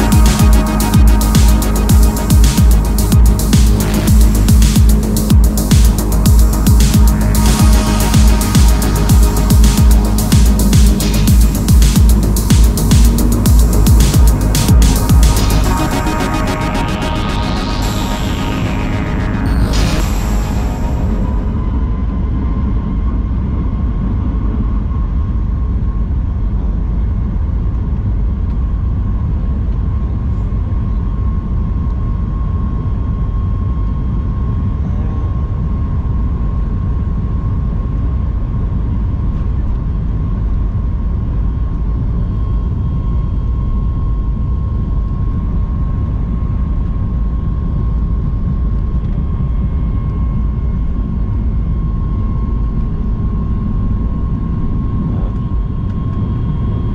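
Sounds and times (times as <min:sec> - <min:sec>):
thin steady whine: 0:00.0 - 0:25.9
jet engine and airflow drone: 0:00.0 - 0:56.9.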